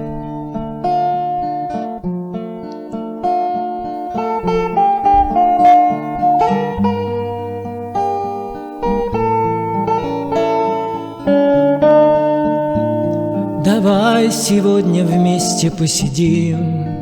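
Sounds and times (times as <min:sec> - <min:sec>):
plucked acoustic guitar melody: 0:00.0 - 0:17.0.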